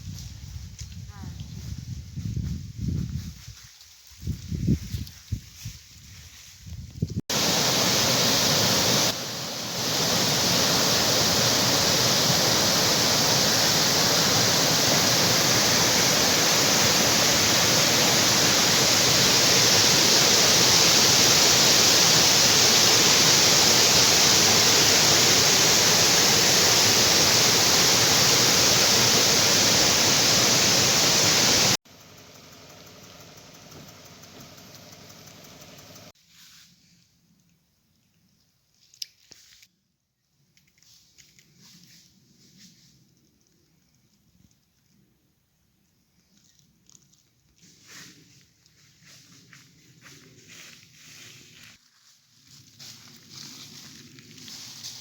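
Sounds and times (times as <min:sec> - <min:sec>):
waterfall rushing: 0:07.3 - 0:31.8
faint hiss: 0:07.3 - 0:37.1.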